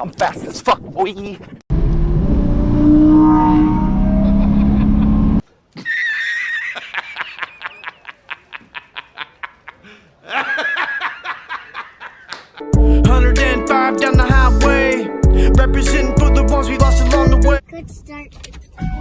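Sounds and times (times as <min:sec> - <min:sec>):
music: 0:12.6 - 0:17.6.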